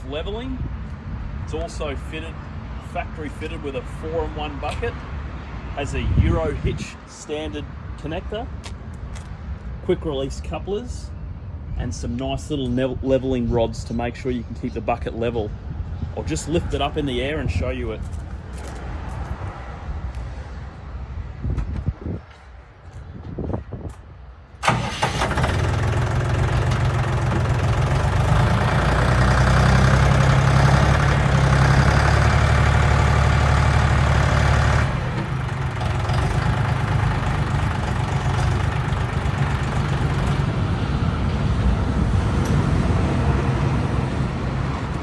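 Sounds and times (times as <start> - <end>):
tractor diesel engine running: 24.6 - 42.0.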